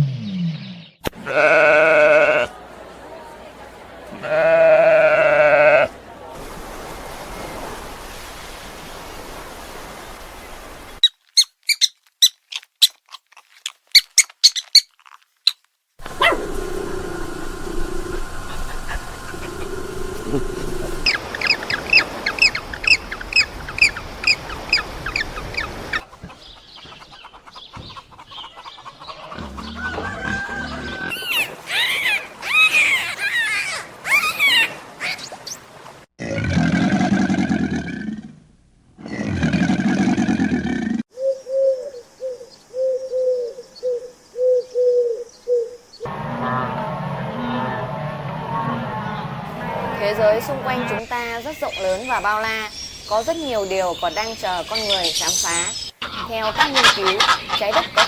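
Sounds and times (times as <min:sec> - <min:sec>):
sharp animal squeaks: 0:11.0 - 0:15.6
loud wavering animal call: 0:16.0 - 0:22.0, 0:29.3 - 0:35.2, 0:44.5 - 0:51.0.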